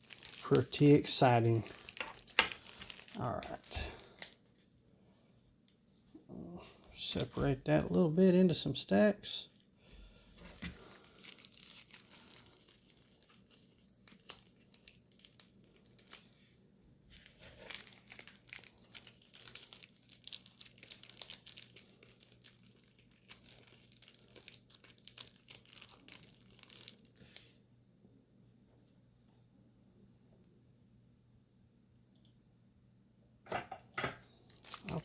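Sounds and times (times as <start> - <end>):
wrappers crinkling: 0.0 - 4.7, 10.5 - 16.4, 17.1 - 27.4, 34.5 - 35.0.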